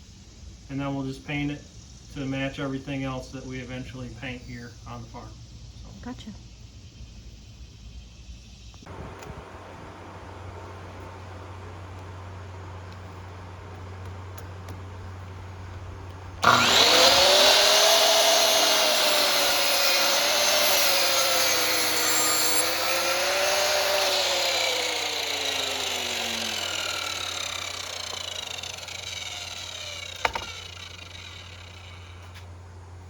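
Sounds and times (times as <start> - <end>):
power saw cutting lumber: 16.4 - 32.5.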